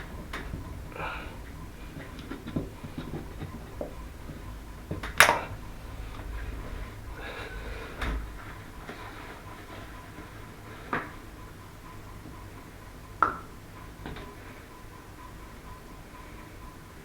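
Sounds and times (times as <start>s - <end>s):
hard objects clicking and knocking: 2.0s - 5.6s.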